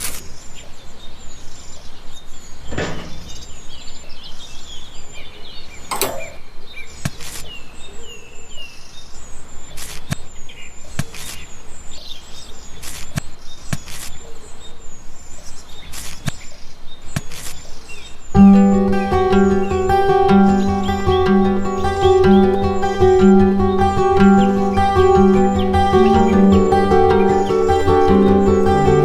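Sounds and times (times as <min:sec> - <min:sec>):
birds chirping: 0:18.4 - 0:29.0.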